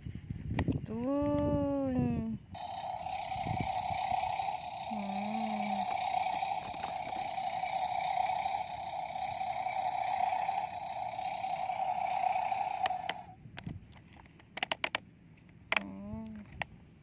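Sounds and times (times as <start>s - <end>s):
toy electric motor whining: 2.6s - 13.4s
plastic clicks: 12.8s - 15.0s.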